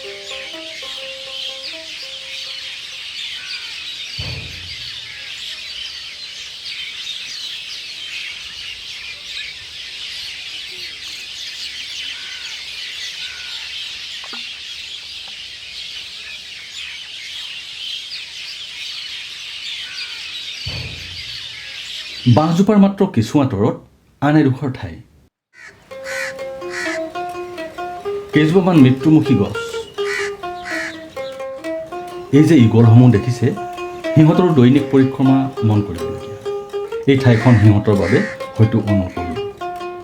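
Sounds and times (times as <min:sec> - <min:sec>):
plucked string notes: 0:00.0 - 0:03.0, 0:04.1 - 0:05.5, 0:20.7 - 0:22.6, 0:25.8 - 0:40.0
flock of birds chattering: 0:00.0 - 0:22.8, 0:25.6 - 0:40.0.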